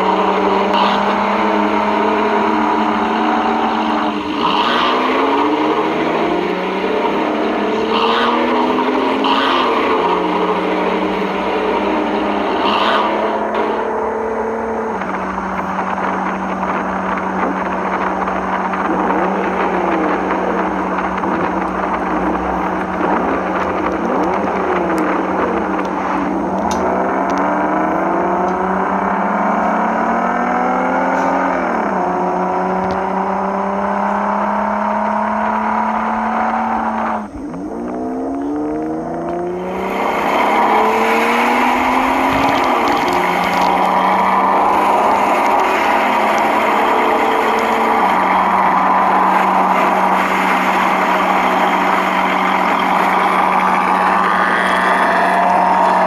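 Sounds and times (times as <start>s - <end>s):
steady hum: 0.0s - 30.3s
car engine revving: 0.0s - 56.0s.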